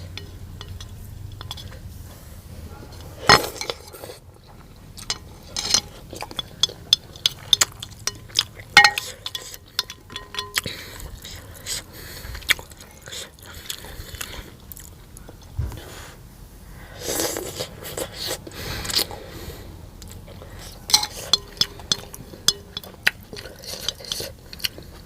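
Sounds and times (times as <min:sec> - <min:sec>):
utensil clinking on dish: 0:00.0 - 0:01.9, 0:02.9 - 0:04.2, 0:05.0 - 0:11.4, 0:20.7 - 0:24.7
wet chewing and mouth clicks: 0:03.0 - 0:15.6, 0:20.0 - 0:25.0.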